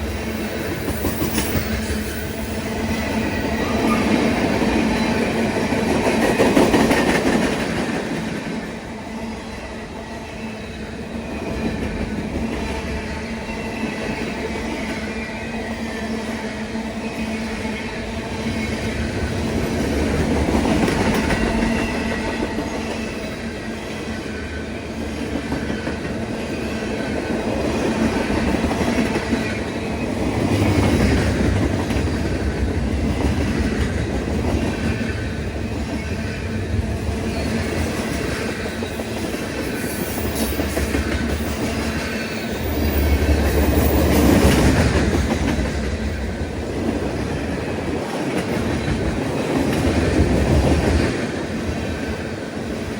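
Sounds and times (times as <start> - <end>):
train wheels clattering: 0.0 - 8.7, 25.1 - 52.9
train rumble: 0.0 - 52.9.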